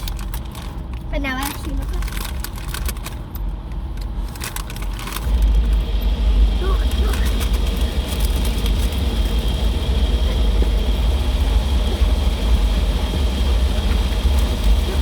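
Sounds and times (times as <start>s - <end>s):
car wash low rumble: 0.0s - 15.0s
high whine: 5.0s - 15.0s.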